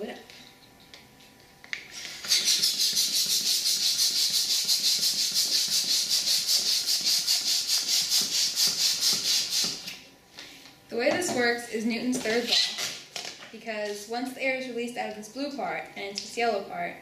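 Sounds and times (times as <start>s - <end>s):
air hissing from balloon toy: 1.9s - 9.9s.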